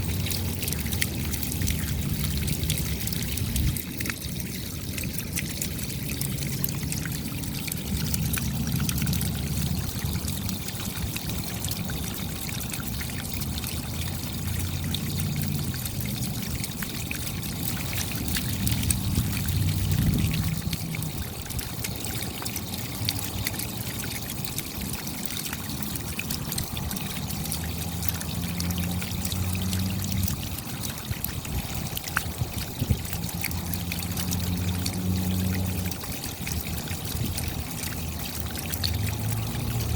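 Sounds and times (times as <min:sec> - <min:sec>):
steady rain: 0:00.0 - 0:05.4, 0:06.0 - 0:39.9.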